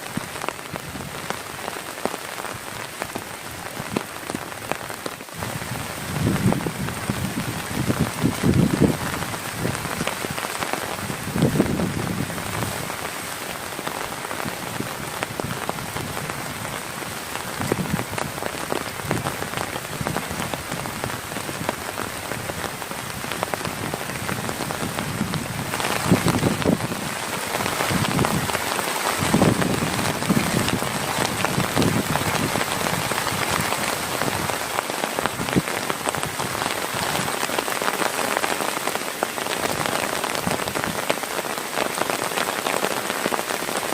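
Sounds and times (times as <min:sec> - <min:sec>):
heavy rain pattering: 0:00.0 - 0:43.9.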